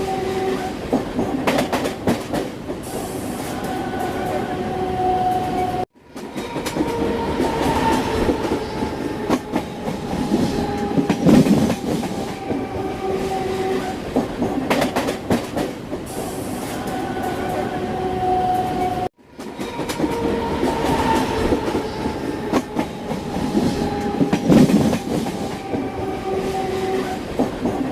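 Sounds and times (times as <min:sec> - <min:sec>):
train rumble: 0:00.0 - 0:27.9
train wheels clattering over rail joints: 0:00.8 - 0:03.2, 0:13.8 - 0:16.4.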